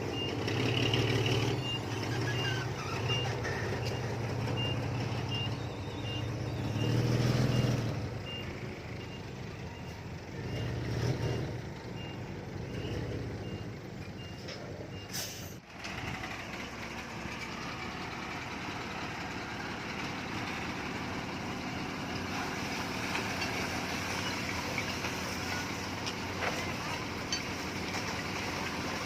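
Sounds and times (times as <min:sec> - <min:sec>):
heavy machinery engine: 0:00.0 - 0:29.0
reversing alarm beeping: 0:00.1 - 0:11.4.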